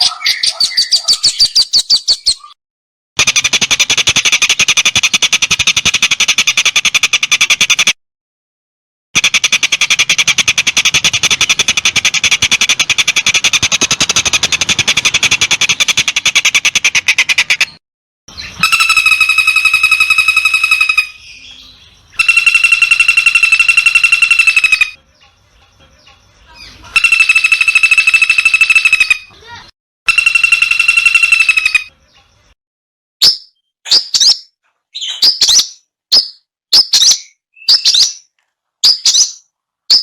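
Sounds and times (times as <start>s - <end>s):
bird rapid rattling trill: 3.2s - 8.0s, 9.2s - 17.8s, 18.4s - 21.2s, 22.1s - 25.3s, 26.9s - 32.5s
bird high buzzy trill: 18.3s - 25.0s, 26.6s - 32.5s.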